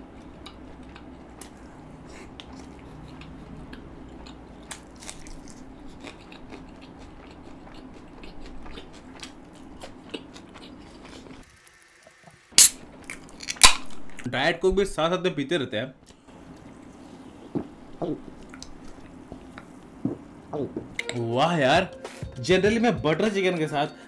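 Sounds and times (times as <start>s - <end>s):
low room hum: 0.0s - 11.5s, 12.2s - 23.2s
person chewing: 0.0s - 11.5s, 12.6s - 14.2s, 16.0s - 21.1s
wet mouth clicks and smacks: 17.5s - 21.1s.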